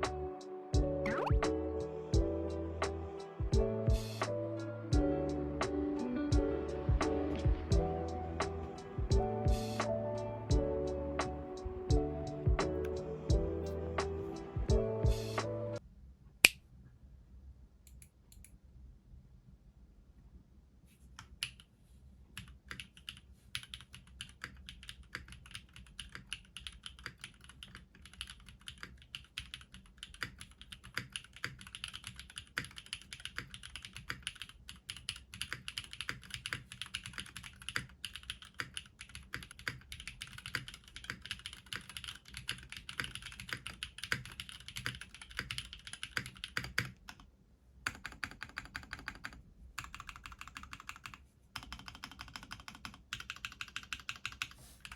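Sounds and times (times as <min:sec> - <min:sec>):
mechanical keyboard typing: 0:22.4 - 0:47.3, 0:47.9 - 0:54.9.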